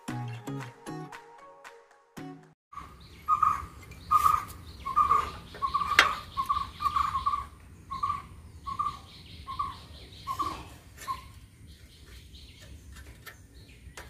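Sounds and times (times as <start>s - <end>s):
bird chirping call: 2.8s - 14.0s.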